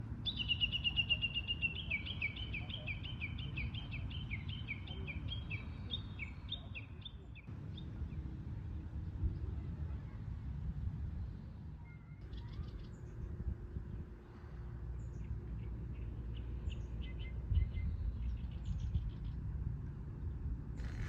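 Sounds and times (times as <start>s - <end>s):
steady low rumble: 7.3s - 21.0s.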